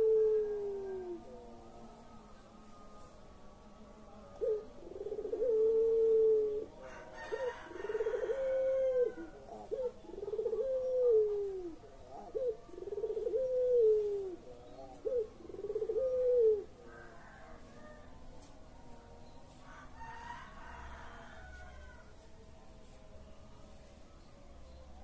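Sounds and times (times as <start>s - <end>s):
dove cooing: 0.0s - 1.6s, 4.3s - 18.1s.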